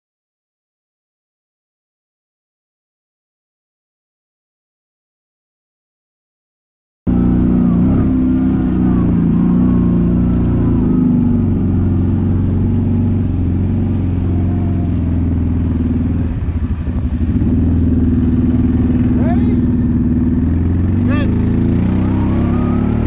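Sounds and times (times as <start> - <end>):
quad engine running: 7.1 - 23.0.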